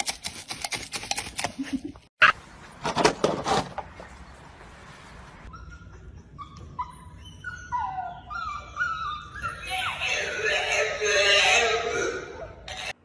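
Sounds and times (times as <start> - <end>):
dog whining: 5.5 - 10.2.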